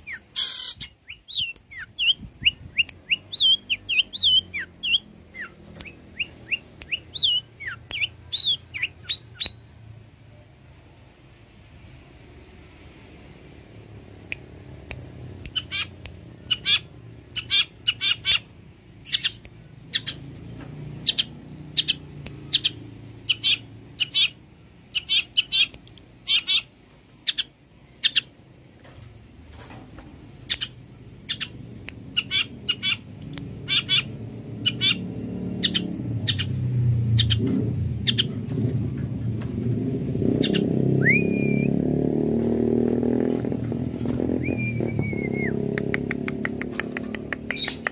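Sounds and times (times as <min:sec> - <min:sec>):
bird chattering song: 0:00.0 - 0:09.6, 0:15.5 - 0:20.2, 0:21.0 - 0:28.4, 0:30.4 - 0:38.7, 0:40.3 - 0:41.3, 0:44.4 - 0:47.9
gliding whistled bird note: 0:44.4 - 0:45.7.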